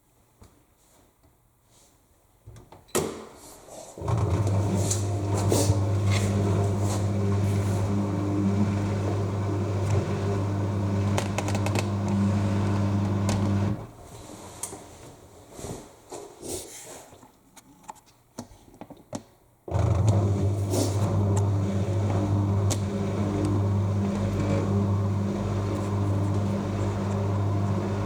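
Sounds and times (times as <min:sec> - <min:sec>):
washing machine hum: 0:04.0 - 0:14.6, 0:19.7 - 0:28.0.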